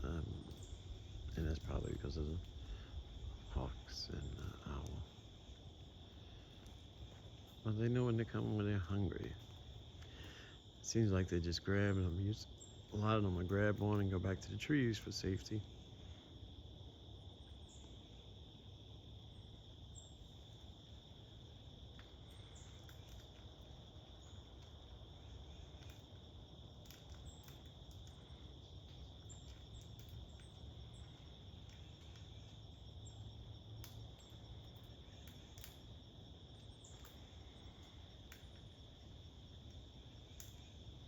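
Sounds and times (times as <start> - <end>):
faint cricket trill: 0.0 - 41.0
light ticks: 33.8 - 35.8, 40.4 - 40.6.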